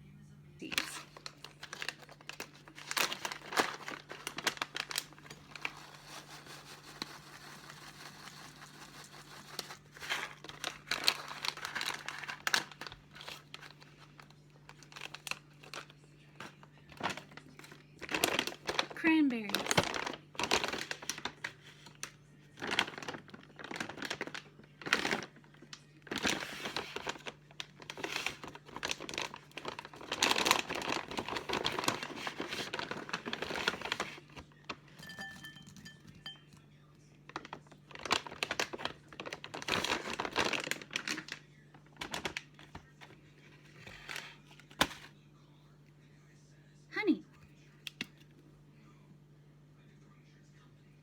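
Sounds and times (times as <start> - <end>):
plastic packaging crinkling: 0.6 - 36.5, 37.2 - 45.1.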